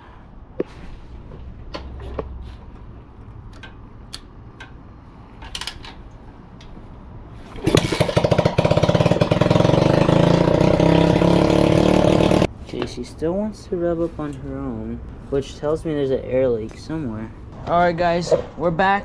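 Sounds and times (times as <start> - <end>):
motorbike engine revving: 7.5 - 12.5.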